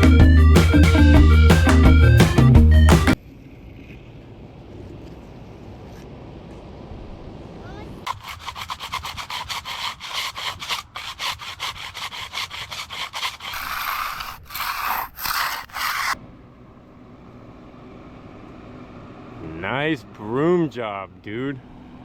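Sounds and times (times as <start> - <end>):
broom scratching on concrete: 8.1 - 16.2.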